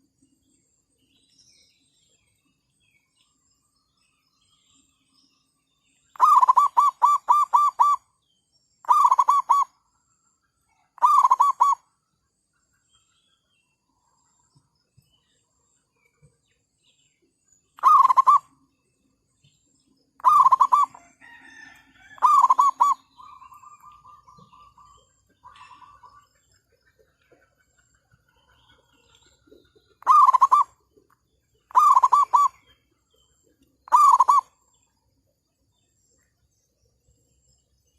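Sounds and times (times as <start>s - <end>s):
dove cooing: 6.2s - 8.0s, 8.9s - 9.7s, 11.0s - 11.8s, 17.8s - 18.5s, 20.2s - 21.0s, 22.2s - 26.1s, 30.0s - 30.8s, 31.7s - 32.6s, 33.9s - 34.5s.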